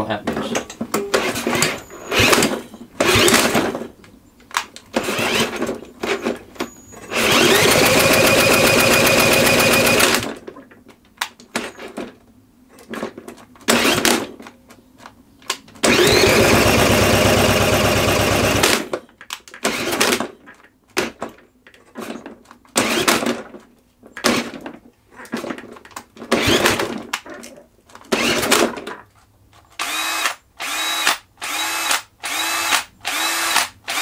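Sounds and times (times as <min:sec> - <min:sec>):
lawnmower engine turning over: 0:04.5 - 0:10.6, 0:15.8 - 0:19.0
drill whine: 0:07.0 - 0:10.2, 0:15.8 - 0:18.8, 0:29.8 - 0:34.0.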